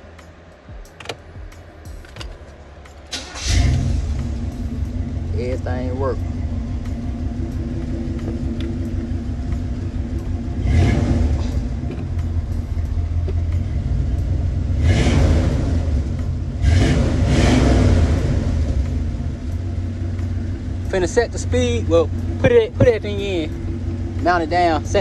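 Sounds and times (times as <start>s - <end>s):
car engine rumbling: 0.0s - 25.0s.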